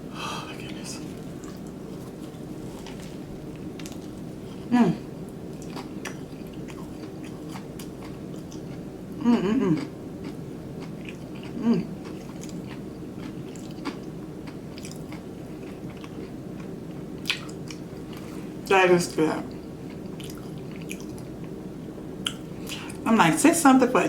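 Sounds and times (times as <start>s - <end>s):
steady low hum: 0.0s - 24.0s
person humming mmm: 4.7s - 5.1s, 9.2s - 10.0s, 11.6s - 11.9s
chewing and mouth clicks: 5.5s - 8.8s, 9.8s - 18.3s, 19.5s - 21.6s.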